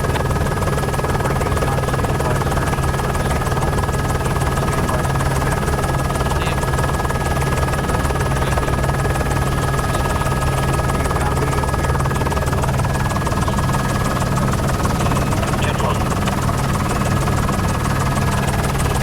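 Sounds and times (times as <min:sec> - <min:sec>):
helicopter rotor and engine: 0:00.0 - 0:19.0.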